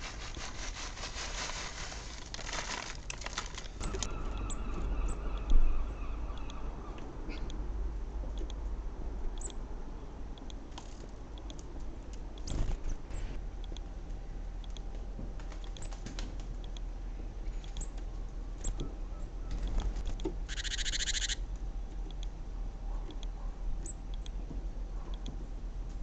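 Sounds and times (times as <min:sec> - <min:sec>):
steady low hum: 0:00.0 - 0:26.0
birds chirping: 0:03.8 - 0:07.7, 0:17.3 - 0:21.4.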